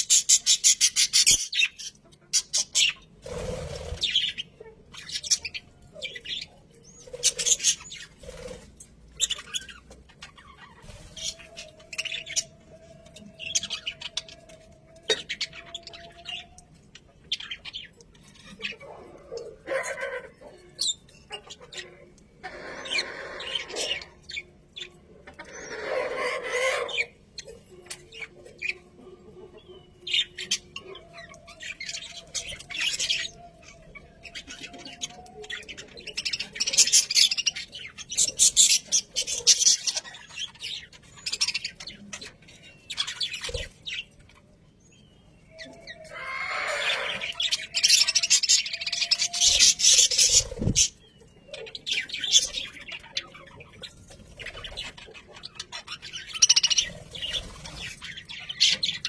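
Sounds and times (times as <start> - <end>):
budgerigars chattering: 46.1 - 59.0.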